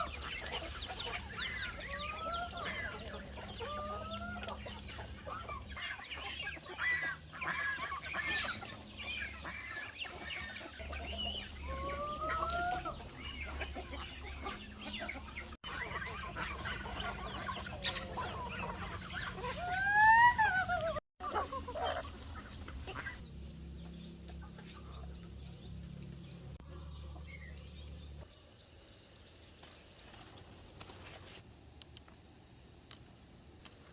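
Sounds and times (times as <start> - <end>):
chicken squawks: 0.0 - 23.2
chickens clucking and calling: 0.0 - 28.3.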